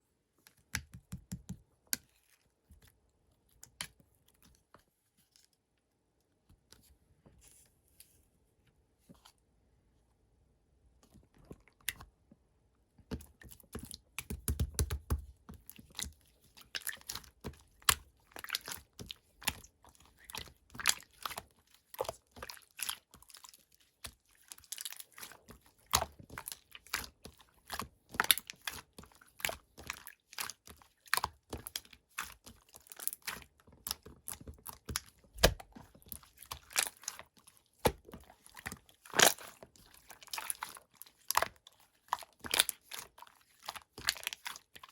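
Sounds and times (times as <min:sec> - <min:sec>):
slime squished by hand: 0:13.2 - 0:44.9.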